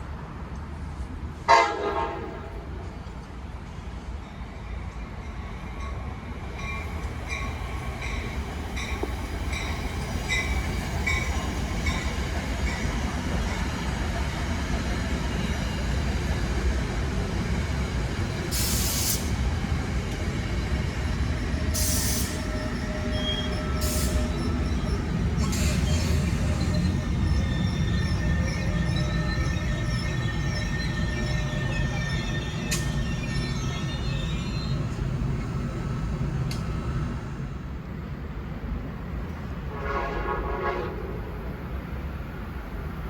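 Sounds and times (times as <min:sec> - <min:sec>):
train rumbling past: 0:00.0 - 0:43.0
wheels squealing: 0:20.9 - 0:35.3.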